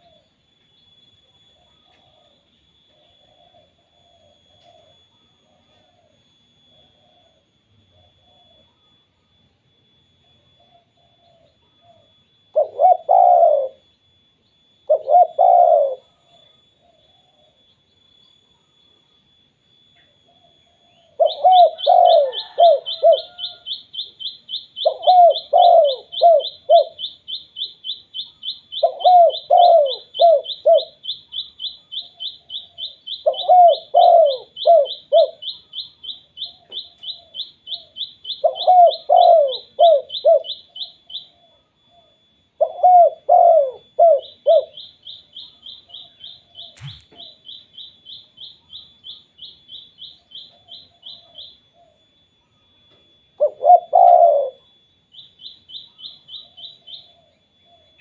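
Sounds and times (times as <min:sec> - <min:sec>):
dove cooing: 0:00.0 - 0:00.4, 0:01.3 - 0:08.9, 0:10.3 - 0:13.9, 0:14.8 - 0:17.7, 0:20.2 - 0:47.6, 0:50.0 - 0:52.6, 0:53.4 - 0:54.8, 0:55.7 - 0:58.0
high-pitched pulsing trill: 0:42.2 - 0:52.3.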